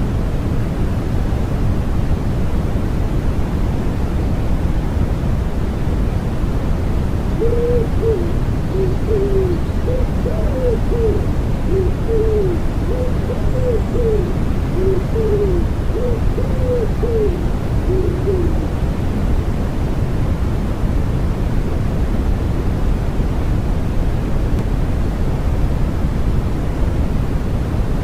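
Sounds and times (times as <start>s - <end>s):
white noise hiss: 0.0s - 28.0s
pigeon cooing: 7.4s - 18.7s.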